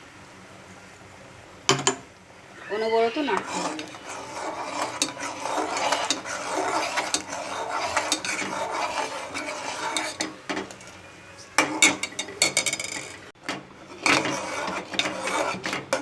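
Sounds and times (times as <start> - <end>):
spoon scraping a pot: 2.6 - 16.0
spoon clinking against pot: 3.4 - 11.0, 11.6 - 13.2.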